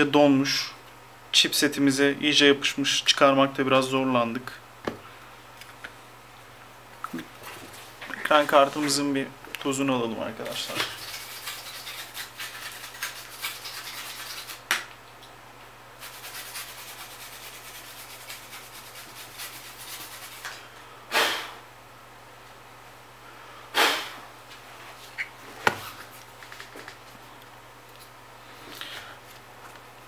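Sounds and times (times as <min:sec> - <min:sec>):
brush scrubbing circuit board: 0:11.0 - 0:14.6, 0:16.0 - 0:20.4.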